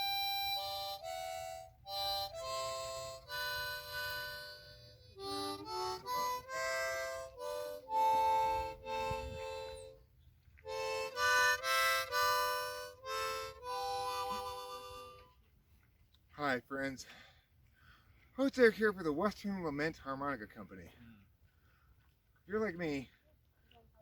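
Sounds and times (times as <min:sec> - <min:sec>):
harmonica playing slow tune: 0:00.0 - 0:10.0, 0:10.6 - 0:15.4.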